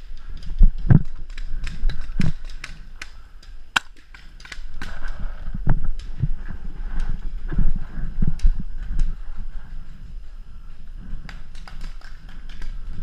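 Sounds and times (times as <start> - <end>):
paintball markers firing pops: 1.6 - 5.0.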